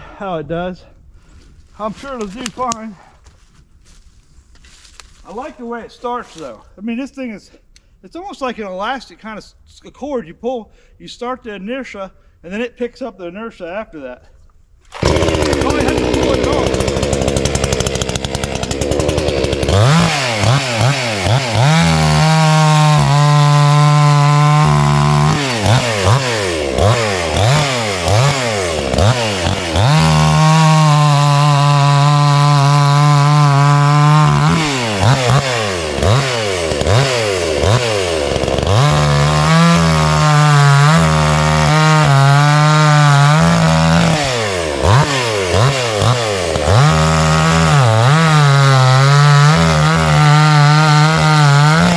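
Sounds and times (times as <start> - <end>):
chainsaw revving: 14.9 - 51.9.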